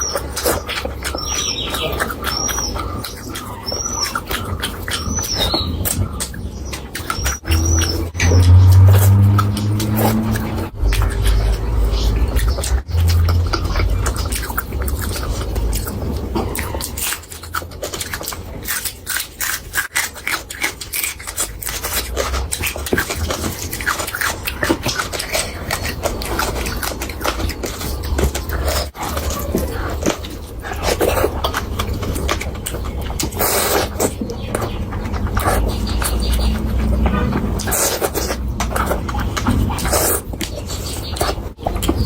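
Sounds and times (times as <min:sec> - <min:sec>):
mouth clicks and smacks: 0:00.0 - 0:42.0
wet chewing: 0:00.0 - 0:42.0
low rumble: 0:07.4 - 0:16.2.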